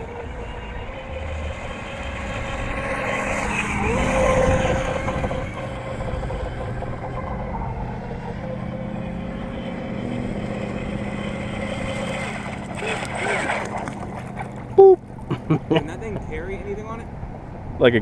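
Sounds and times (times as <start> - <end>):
electric motors whining: 0.0 - 15.2.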